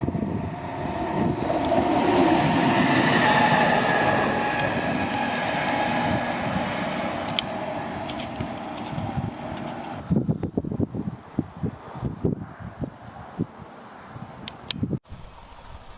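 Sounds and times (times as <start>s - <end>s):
freight train wheels rumbling on rail: 0.0s - 10.4s.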